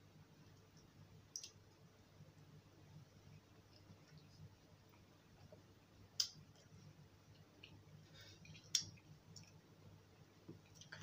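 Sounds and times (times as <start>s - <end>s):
person chewing: 6.1s - 9.6s.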